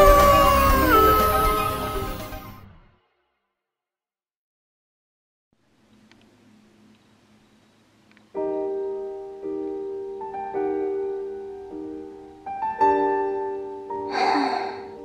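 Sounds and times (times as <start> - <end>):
faint hum: 5.6 - 9.7
slow solo piano chords: 8.3 - 15.0.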